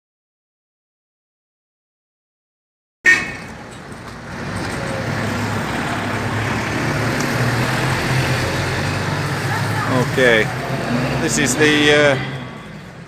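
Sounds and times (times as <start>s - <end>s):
passing cars with engine hum: 3.1s - 13.0s.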